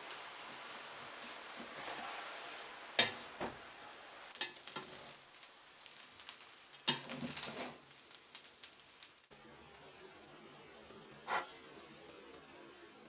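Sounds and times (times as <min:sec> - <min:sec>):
food sizzling in frying pan: 0:00.0 - 0:09.4.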